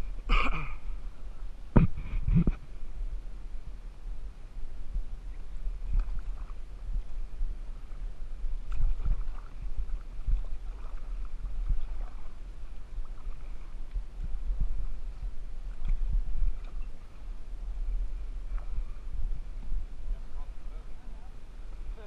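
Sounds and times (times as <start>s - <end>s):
steady low rumble: 0.0s - 22.0s
paddle splashes: 5.2s - 22.0s.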